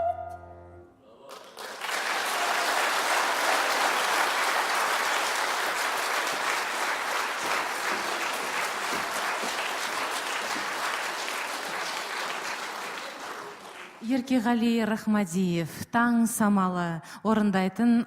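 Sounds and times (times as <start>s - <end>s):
audience applauding: 1.2s - 14.0s.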